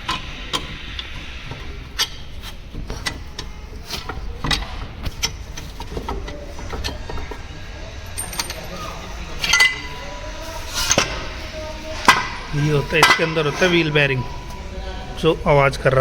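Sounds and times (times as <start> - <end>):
low steady hum: 0.0 - 16.0
hand tools knocking on metal: 10.7 - 14.5.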